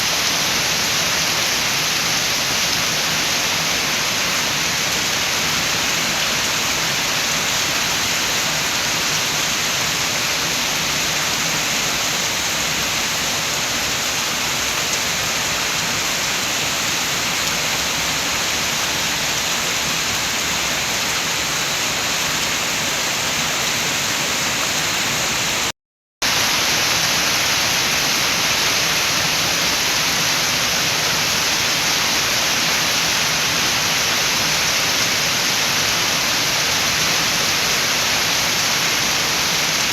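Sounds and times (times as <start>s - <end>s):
steady rain: 0.0s - 39.9s
wind: 0.0s - 39.9s.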